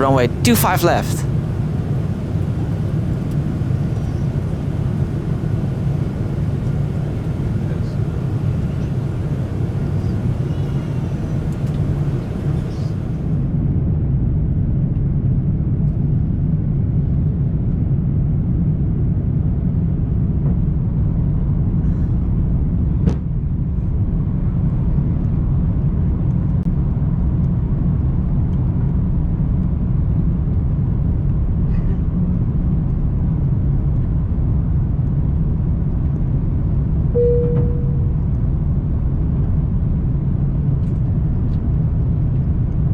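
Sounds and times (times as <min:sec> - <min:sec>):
jet engines rumbling in cabin: 0:00.0 - 0:13.5, 0:37.2 - 0:38.2
short tone: 0:37.2 - 0:38.2.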